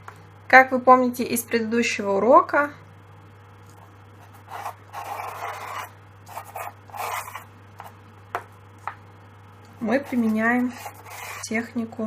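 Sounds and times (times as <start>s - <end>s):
pastel rubbing on paper: 4.2s - 7.9s, 9.9s - 11.5s.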